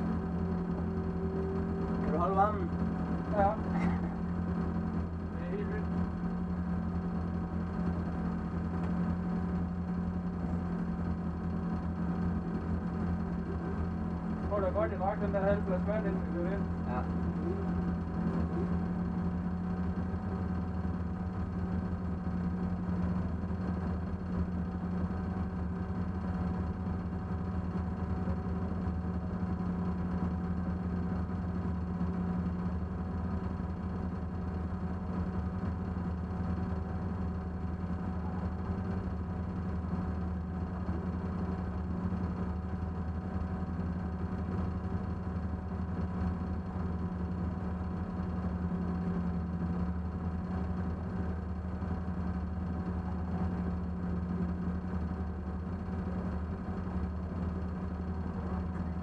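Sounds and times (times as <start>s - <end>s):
race car engine idling: 0.0s - 59.0s.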